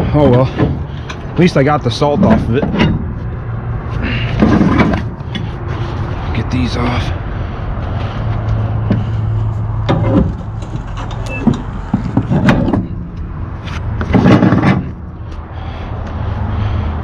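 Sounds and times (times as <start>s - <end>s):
truck engine idling: 0.0s - 16.8s
strap hardware clanking: 2.1s - 3.3s.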